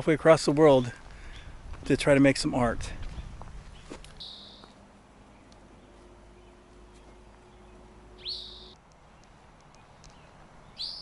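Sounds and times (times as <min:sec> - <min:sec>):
songbird calling: 0:03.1 - 0:11.0.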